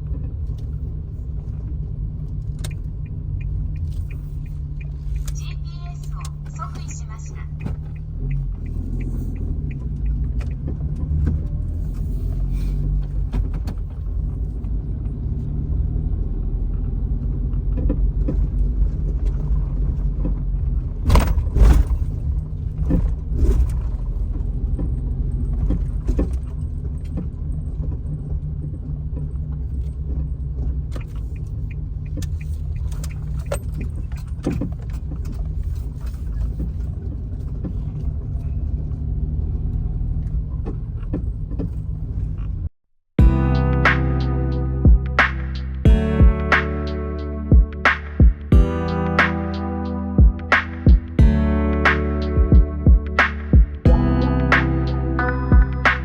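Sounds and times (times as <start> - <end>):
suspension clunks and rattles: 0.0 - 5.5, 7.5 - 42.7
road and engine rumble: 0.0 - 56.0.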